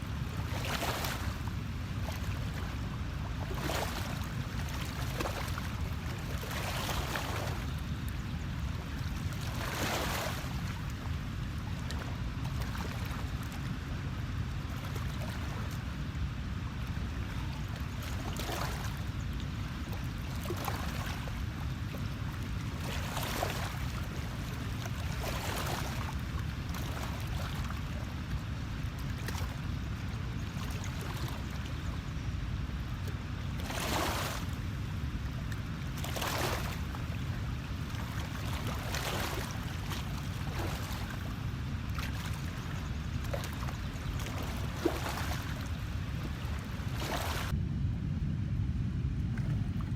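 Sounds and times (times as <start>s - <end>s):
water splashing: 36.0s - 47.6s
low rumble: 47.5s - 49.9s.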